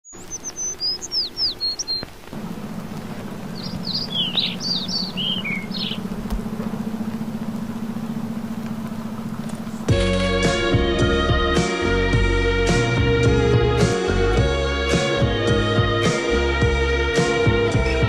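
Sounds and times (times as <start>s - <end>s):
birds chirping: 0.0s - 14.1s
low whirring hum with flutter: 0.2s - 11.6s.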